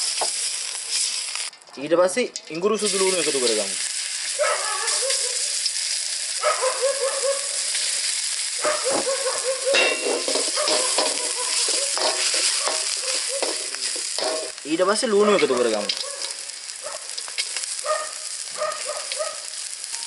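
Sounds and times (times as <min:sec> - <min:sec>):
paste sizzling in butter: 0:00.0 - 0:01.5, 0:02.8 - 0:20.0
metal ladle scraping a wok: 0:09.7 - 0:14.5.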